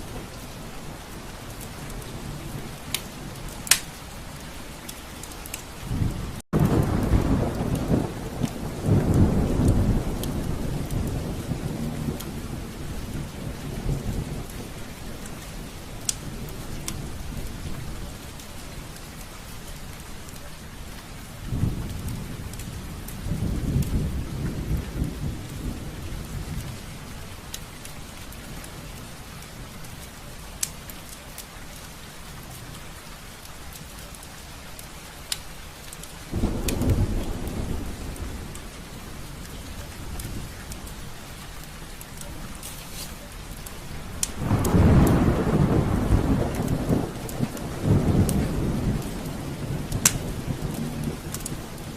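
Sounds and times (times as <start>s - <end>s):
rain on a window: 0.0s - 51.9s
thunder rumbling: 5.5s - 18.9s, 21.4s - 29.8s, 36.2s - 42.6s, 43.3s - 51.9s.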